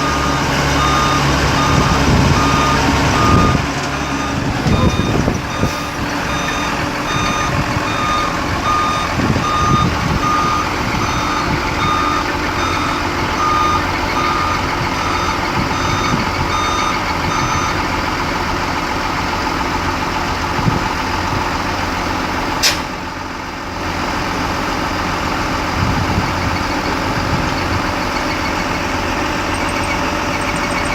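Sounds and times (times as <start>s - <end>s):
reversing alarm beeping: 0.0s - 17.8s, 26.2s - 30.9s
diesel engine running: 0.0s - 30.9s
sharp crack with hiss: 22.6s - 23.0s.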